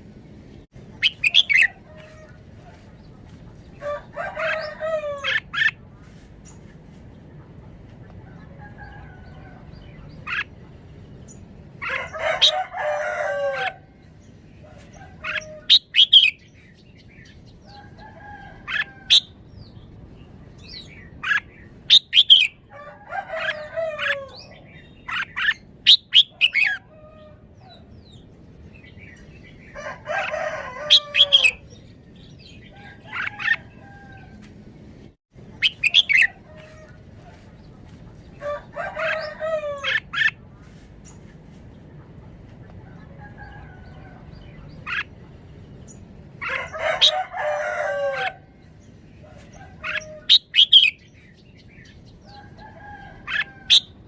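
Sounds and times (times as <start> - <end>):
rooster crowing: 3.8 - 5.4, 11.8 - 13.9, 22.7 - 24.5, 29.8 - 31.7, 38.4 - 40.1, 46.4 - 48.5.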